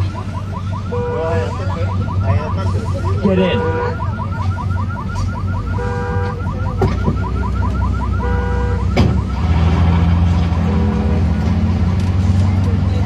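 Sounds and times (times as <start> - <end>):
car alarm chirping and blaring: 0.0 - 9.8.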